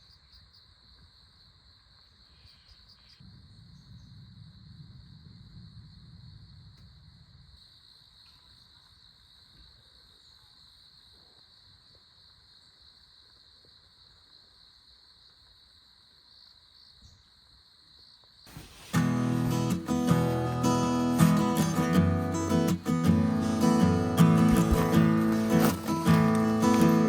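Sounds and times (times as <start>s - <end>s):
crickets chirping: 0.0s - 27.0s
low rumble: 3.2s - 7.5s
strummed acoustic guitar music: 18.5s - 27.0s.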